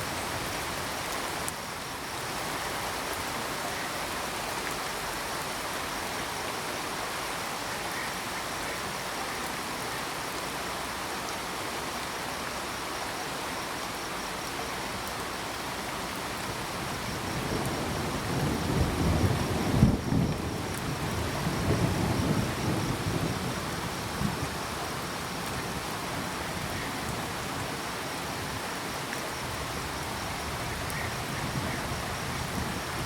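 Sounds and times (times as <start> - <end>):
crickets chirping: 0.0 - 33.0
steady rain: 0.0 - 33.0
low rumble of thunder: 17.0 - 25.0.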